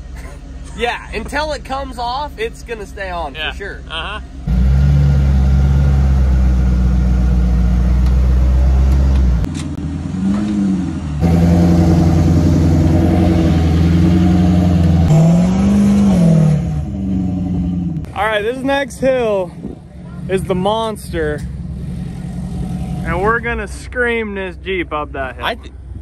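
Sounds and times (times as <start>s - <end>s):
engine revving: 3.9s - 18.2s, 20.0s - 24.3s.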